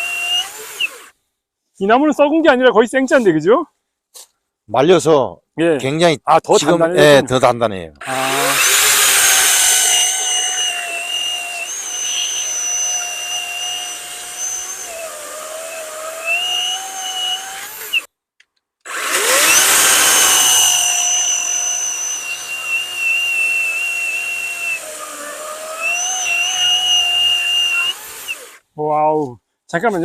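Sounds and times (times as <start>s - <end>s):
electric chainsaw cutting log: 0.0s - 1.2s, 8.0s - 18.1s, 18.9s - 28.6s.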